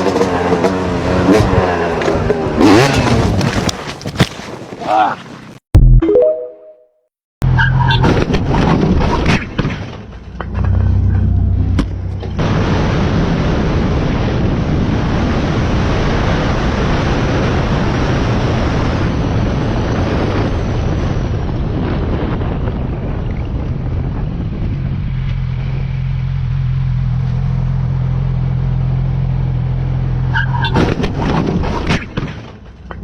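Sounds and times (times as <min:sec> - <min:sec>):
motorcycle engine drone: 0:00.0 - 0:03.4, 0:09.9 - 0:31.7
wind rushing on microphone: 0:11.6 - 0:26.0.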